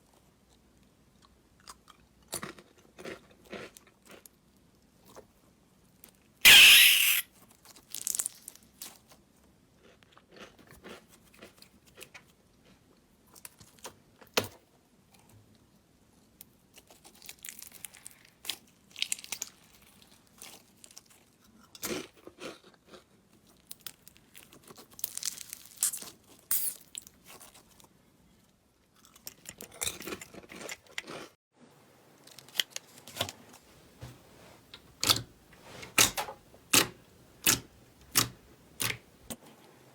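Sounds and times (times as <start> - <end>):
slime crackling and squelching: 16.8 - 21.0, 23.9 - 26.3.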